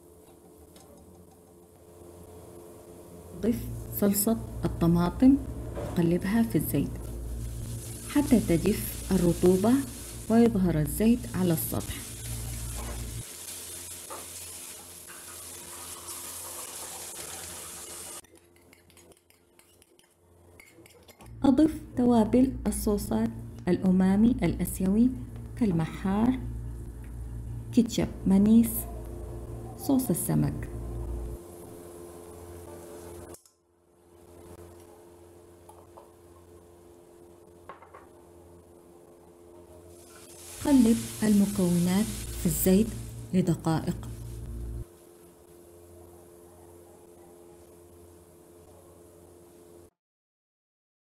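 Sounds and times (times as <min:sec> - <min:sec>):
faint steady hum: 0:00.0 - 0:19.0, 0:20.6 - 0:49.9
sauce sizzling in hot oil: 0:07.1 - 0:18.2, 0:39.9 - 0:45.2
spatula stirring in wok: 0:12.0 - 0:21.2
utensils clicking against wok: 0:18.2 - 0:21.3.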